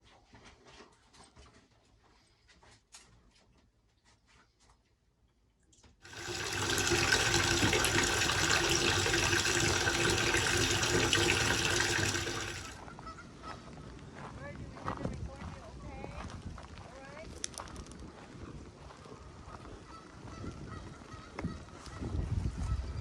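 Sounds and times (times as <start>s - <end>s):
water running from a tap: 6.0s - 12.8s.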